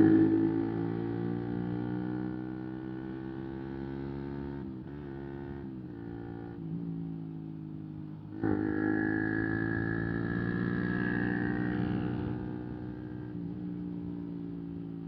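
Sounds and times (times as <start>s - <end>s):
motorcycle engine running: 4.4s - 15.0s.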